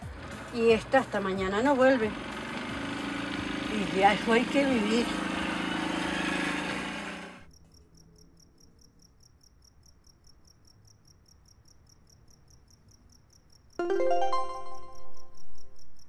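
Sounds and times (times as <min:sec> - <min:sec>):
crickets chirping: 0:07.4 - 0:13.8.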